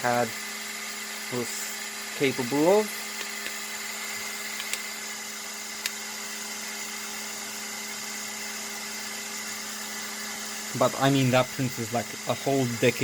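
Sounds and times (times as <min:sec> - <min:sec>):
printer fans and motors whirring: 0:00.0 - 0:13.0.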